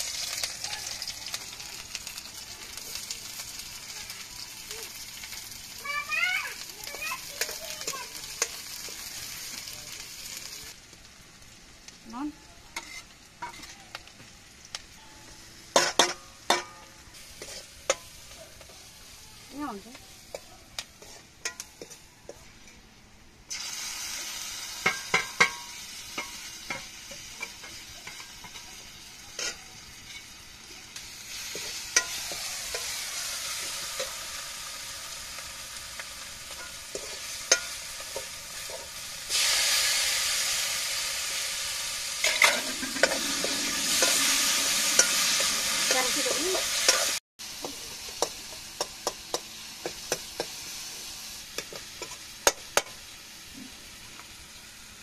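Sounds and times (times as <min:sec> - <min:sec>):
onions sizzling in oil: 0:00.0 - 0:55.0
ladle scraping and clinking on pan: 0:42.2 - 0:44.3.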